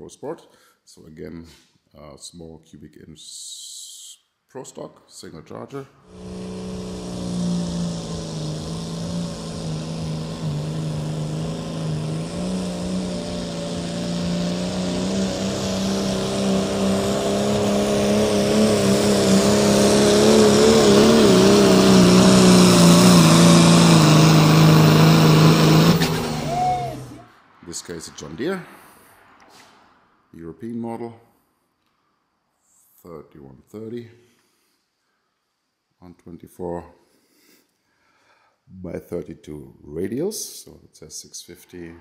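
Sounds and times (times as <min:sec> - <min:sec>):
high hiss: 0:06.0 - 0:27.2
tractor engine running hard: 0:06.1 - 0:27.2.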